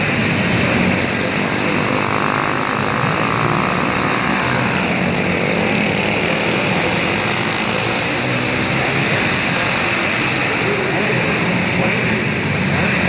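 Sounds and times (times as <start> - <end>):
kart engines racing: 0.0 - 13.0.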